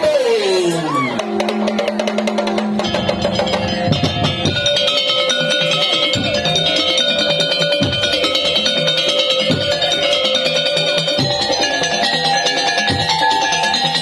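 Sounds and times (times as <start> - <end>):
rapid wooden percussion: 0.0 - 14.0
held melodic line: 1.2 - 14.0
deep drum hits: 1.5 - 5.2.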